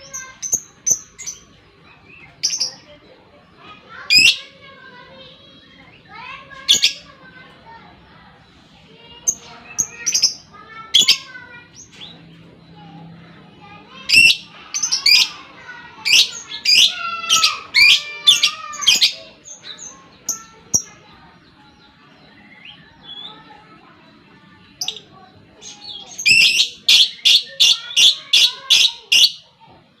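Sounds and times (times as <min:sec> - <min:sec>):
lovebird shrill chirping chatter: 0:14.0 - 0:21.0, 0:25.7 - 0:29.4.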